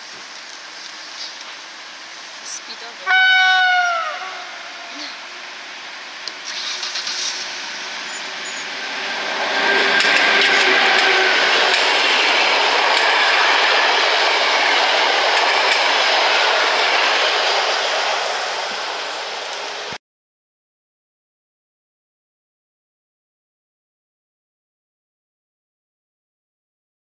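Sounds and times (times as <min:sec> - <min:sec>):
train wheels rolling on rails: 0:00.0 - 0:20.0
wheel clatter: 0:06.4 - 0:08.7.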